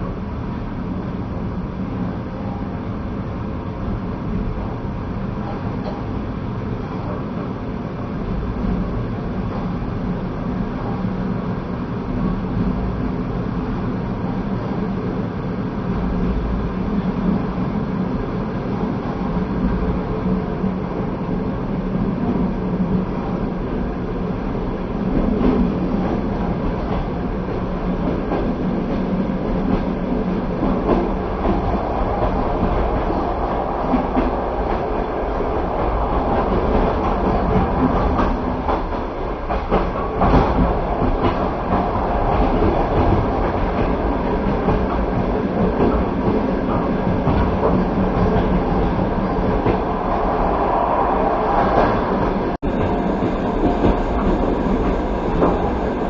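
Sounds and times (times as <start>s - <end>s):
train wheels rumbling on rails: 0.0s - 56.0s
clacks over rail joints: 35.8s - 49.9s.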